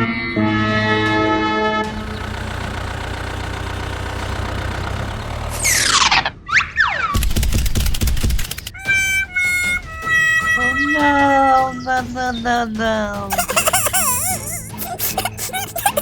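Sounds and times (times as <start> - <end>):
engine-like rumble: 1.0 - 6.4
rapid loud clatter: 7.2 - 8.8
music with held notes: 8.8 - 12.3.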